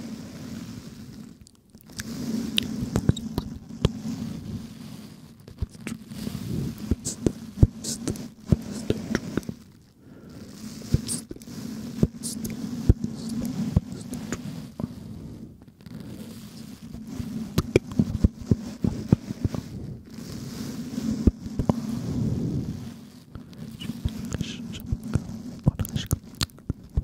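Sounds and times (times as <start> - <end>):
breathy murmur: 5.6 - 14.9
wet mouth clicks and smacks: 25.7 - 26.8.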